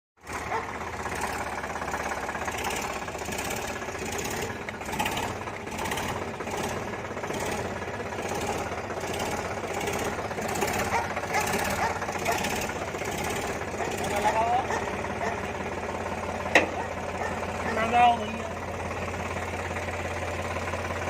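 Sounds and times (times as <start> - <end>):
tractor diesel engine knocking: 0.2 - 21.0.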